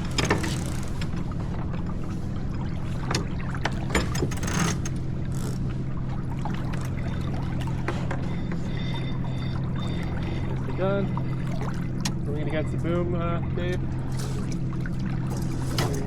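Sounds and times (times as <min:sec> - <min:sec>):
deck gear clicks and knocks: 0:00.0 - 0:01.2, 0:03.1 - 0:05.6
sailboat low rumble: 0:00.0 - 0:16.0.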